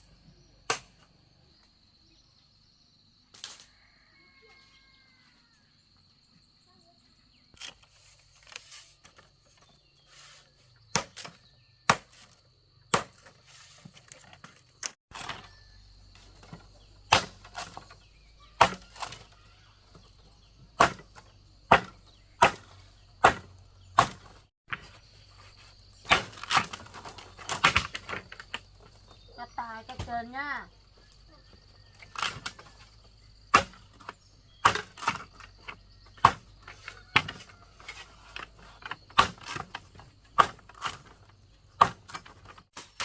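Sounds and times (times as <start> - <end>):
knocks striking wood: 20.8 - 25.0, 33.5 - 37.5.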